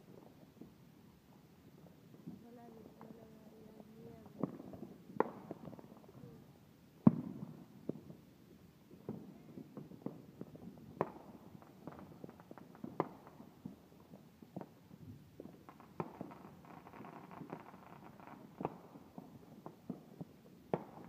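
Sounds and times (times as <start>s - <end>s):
distant fireworks popping and crackling: 0.0s - 21.0s
loud firework bangs: 7.0s - 7.7s.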